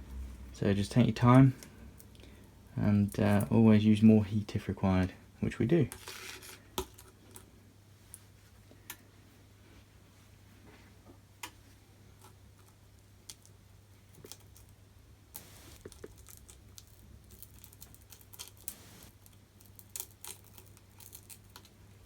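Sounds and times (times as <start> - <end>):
low steady hum: 15.4 - 15.9, 18.7 - 19.1.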